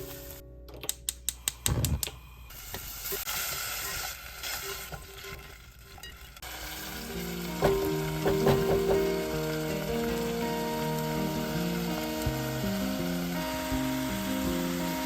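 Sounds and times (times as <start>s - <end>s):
food sizzling in a pan: 2.5s - 15.0s
utensil tapping: 7.6s - 9.5s.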